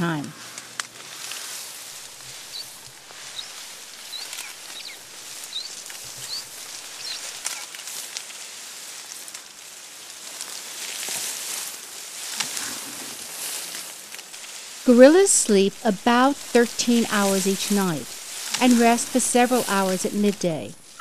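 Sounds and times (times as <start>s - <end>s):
forest ambience hiss: 0.0s - 21.0s
gorillas snapping stems: 0.4s - 8.4s, 10.2s - 14.6s
bird chirping: 2.3s - 7.4s.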